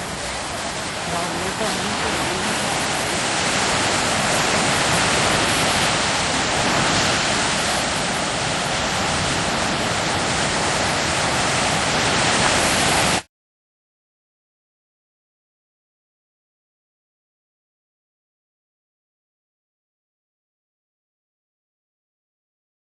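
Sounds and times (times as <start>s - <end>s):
strong wind over microphone: 0.0s - 13.3s.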